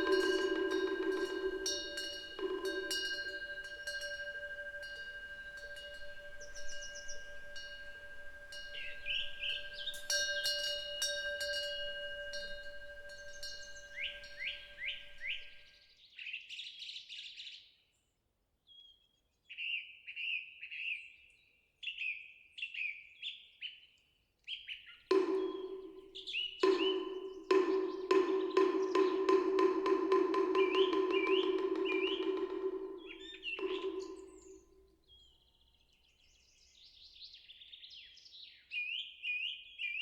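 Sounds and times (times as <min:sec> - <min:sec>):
bird chirping falling notes: 0:00.0 - 0:15.6, 0:25.1 - 0:34.7
temple wind bell ringing: 0:00.0 - 0:15.6, 0:25.1 - 0:34.8.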